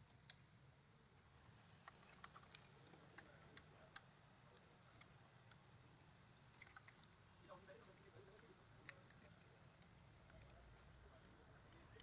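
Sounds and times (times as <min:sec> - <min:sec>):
faint irregular clicks: 0:00.1 - 0:00.5, 0:01.8 - 0:07.2, 0:08.8 - 0:10.6.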